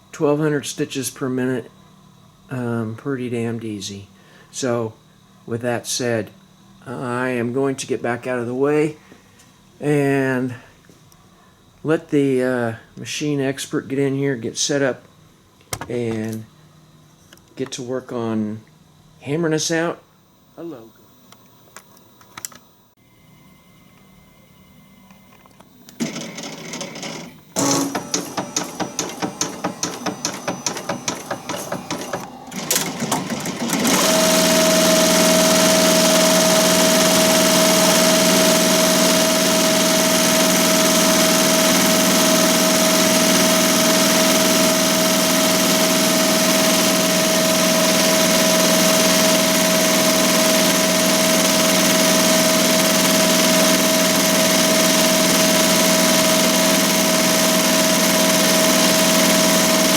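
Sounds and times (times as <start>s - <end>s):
embroidery machine stitching: 26.0s - 59.9s.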